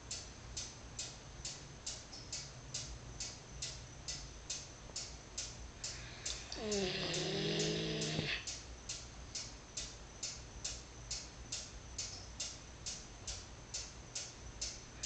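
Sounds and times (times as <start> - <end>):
steady ticking: 0.0 - 14.9
dog moaning snore: 6.5 - 8.5.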